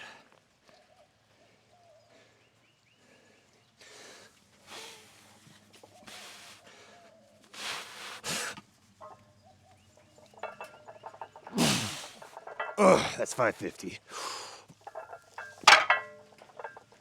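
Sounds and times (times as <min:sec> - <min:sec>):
person breathing forcefully: 0:11.5 - 0:12.2, 0:14.1 - 0:14.7.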